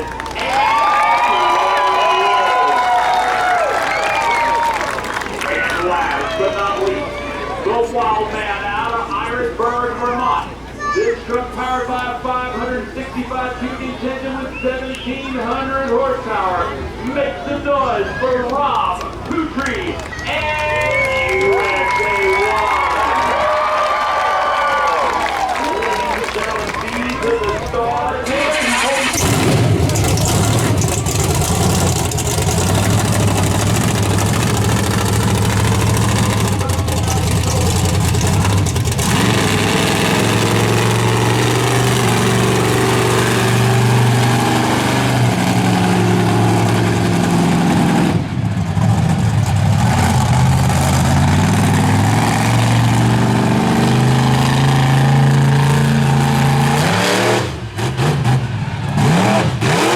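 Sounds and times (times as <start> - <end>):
truck engine revving hard: 24.5 - 59.9.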